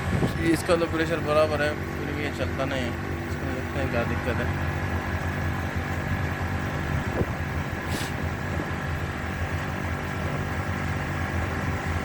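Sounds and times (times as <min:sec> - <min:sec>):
short hiss: 0:07.8 - 0:08.2.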